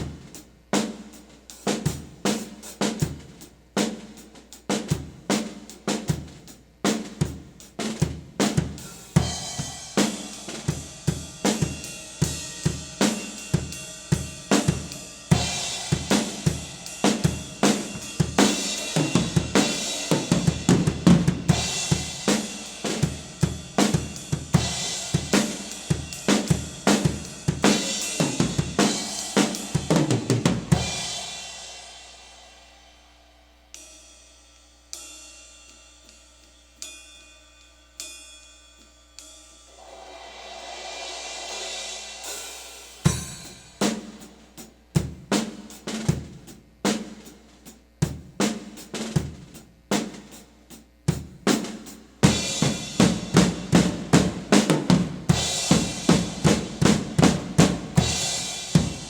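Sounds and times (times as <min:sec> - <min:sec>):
drum kit playing fast groove: 0:00.0 - 0:32.3, 0:39.8 - 0:59.0
cymbals ringing: 0:30.9 - 0:44.2.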